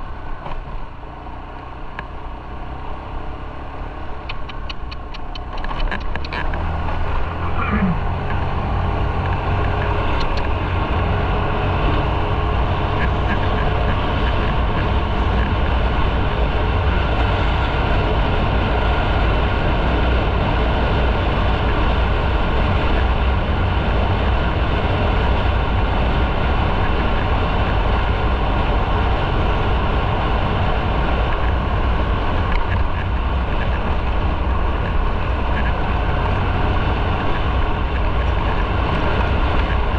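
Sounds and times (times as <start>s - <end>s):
motorcycle engine rumble: 0.0s - 39.9s
wind and road noise: 0.0s - 39.9s.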